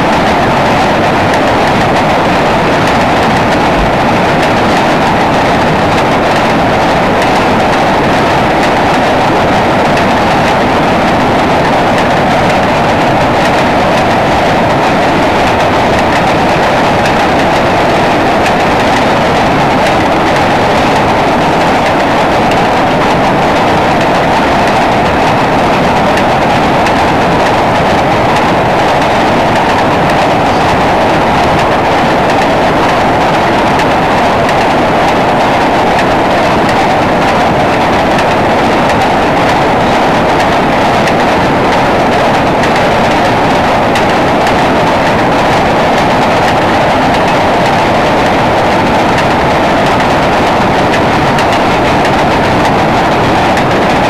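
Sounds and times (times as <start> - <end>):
freight wheels rolling on bridge: 0.0 - 54.0
rail joint clicks: 0.1 - 54.0.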